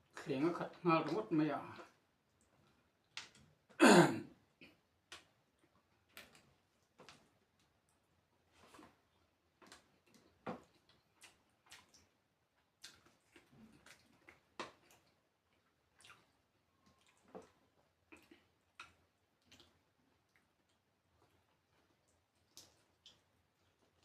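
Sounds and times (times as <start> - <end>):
person chewing food: 4.6 - 24.0.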